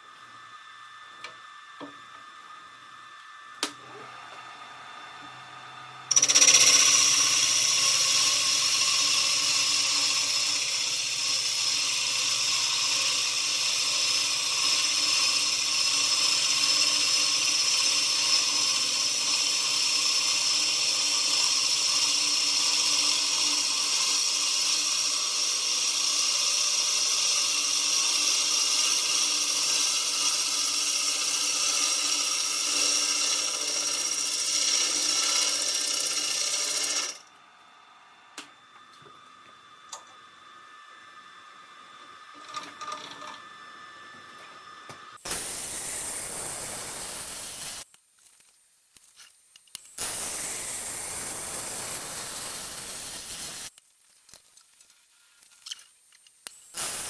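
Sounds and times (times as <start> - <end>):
lathe machining wood with whine: 0.3 - 37.2.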